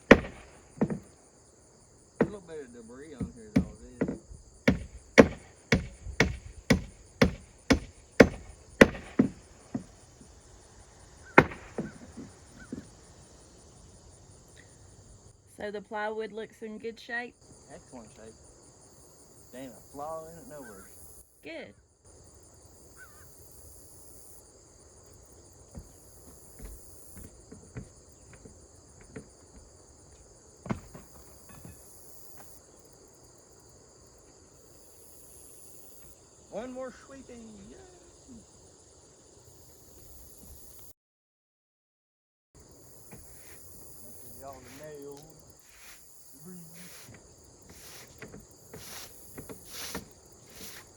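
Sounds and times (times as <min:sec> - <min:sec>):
hammer blows on plywood: 0:00.0 - 0:01.2, 0:02.2 - 0:10.6, 0:11.2 - 0:13.0, 0:25.7 - 0:29.7, 0:30.6 - 0:32.5, 0:43.0 - 0:50.9
insects chirring: 0:00.0 - 0:40.9, 0:42.6 - 0:50.9.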